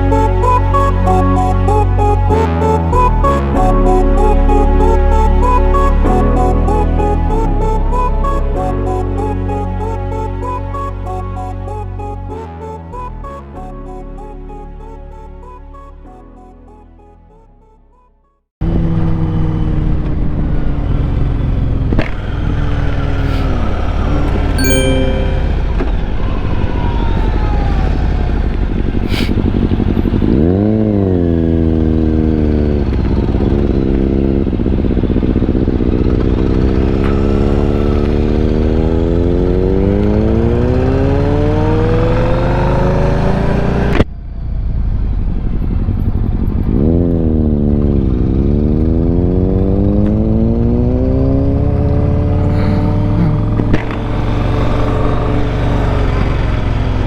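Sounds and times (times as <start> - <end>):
motorcycle engine accelerating: 27.9 - 44.0, 45.4 - 57.0.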